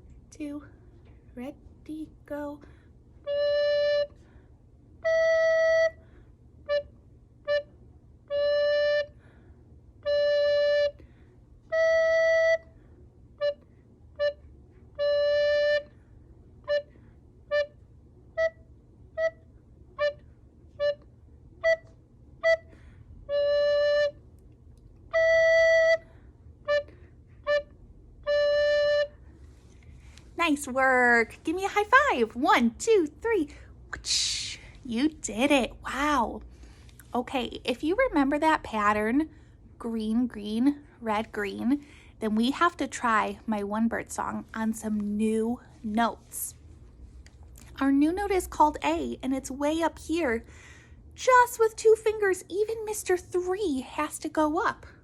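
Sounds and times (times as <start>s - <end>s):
recorder playing simple tune: 3.2s - 4.3s, 5.0s - 6.0s, 6.6s - 9.2s, 10.0s - 11.0s, 11.6s - 16.0s, 16.6s - 24.3s, 25.1s - 29.3s.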